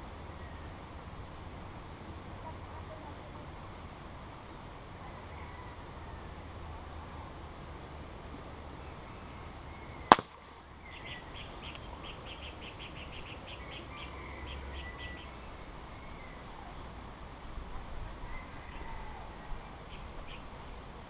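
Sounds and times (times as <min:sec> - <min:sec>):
steady background noise: 0:00.0 - 0:21.0
sharp crack: 0:10.1 - 0:10.7.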